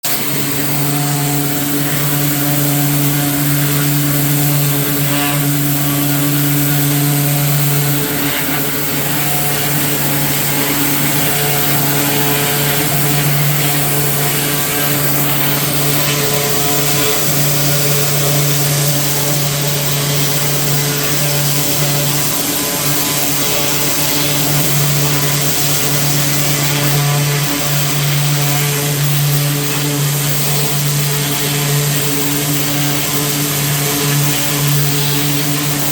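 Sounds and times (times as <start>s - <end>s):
pressure washer running: 0.0s - 35.9s.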